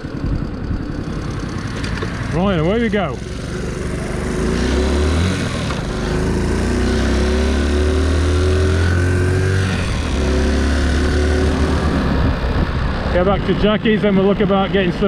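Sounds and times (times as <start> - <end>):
wind rumble on microphone: 0.0 - 1.1, 11.6 - 13.7
motorcycle engine accelerating: 0.0 - 15.0.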